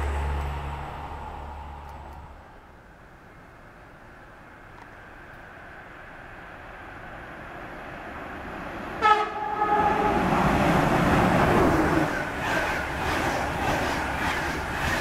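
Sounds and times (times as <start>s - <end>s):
electric locomotive approaching: 0.0s - 2.6s, 6.9s - 15.0s
train horn blast: 9.0s - 10.3s
wheel-on-rail rushing noise: 9.6s - 15.0s.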